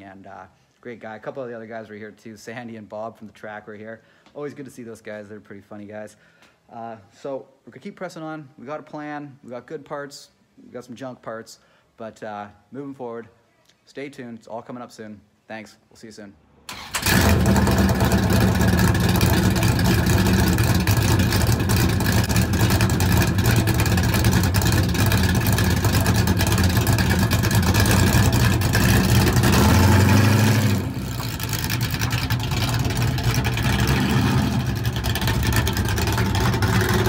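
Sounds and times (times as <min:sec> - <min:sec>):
car engine revving: 0:16.7 - 0:37.0
car engine idling loud: 0:17.0 - 0:37.0.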